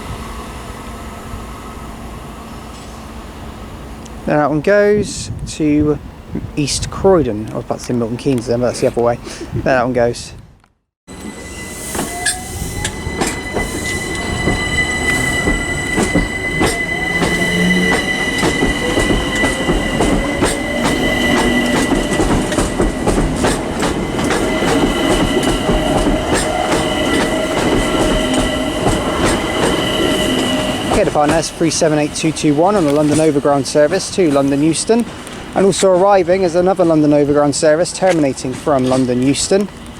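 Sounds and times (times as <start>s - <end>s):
train motor whine: 11.1s - 35.7s
wheels squealing: 11.1s - 39.9s
wheels clicking over rail joints: 11.9s - 39.9s.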